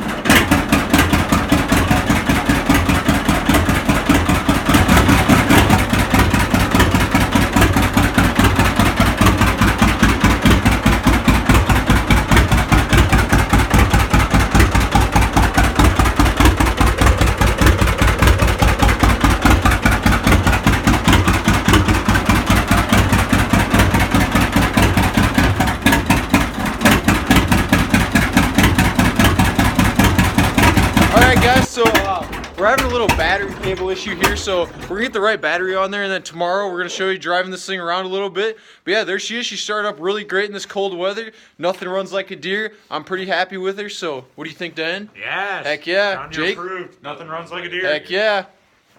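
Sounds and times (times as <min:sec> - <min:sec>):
tractor engine running: 0:00.0 - 0:38.8.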